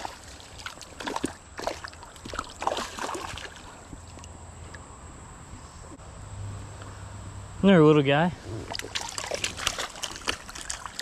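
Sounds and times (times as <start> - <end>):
creek water splashing: 0.0 - 4.4, 8.0 - 11.0.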